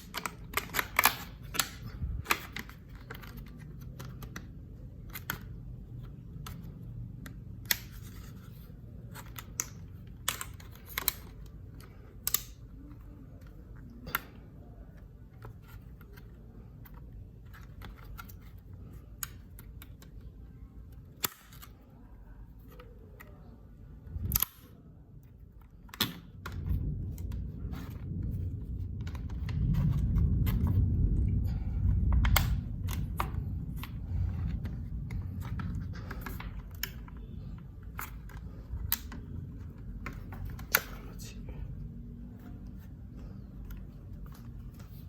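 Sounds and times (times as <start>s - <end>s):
packaging clicks and taps: 0.0s - 8.4s
low handling rumble: 26.3s - 45.0s.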